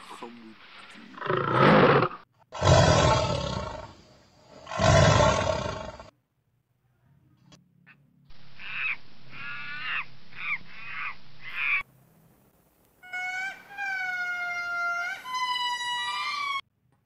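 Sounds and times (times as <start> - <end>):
lemurs wailing: 13.0 - 16.6
macaques screeching: 13.0 - 16.6.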